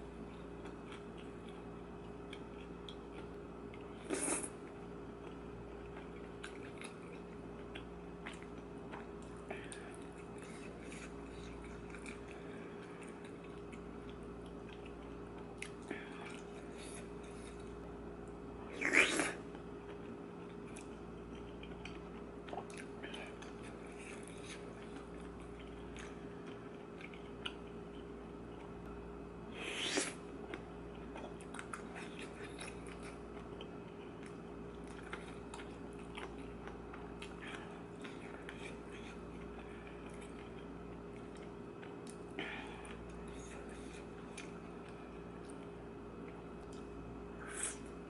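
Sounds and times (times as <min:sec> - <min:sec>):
steady low hum: 0:00.0 - 0:48.0
person chewing food: 0:00.1 - 0:29.0, 0:29.6 - 0:48.0
loud bite or slurp: 0:18.8 - 0:19.4, 0:29.6 - 0:30.2.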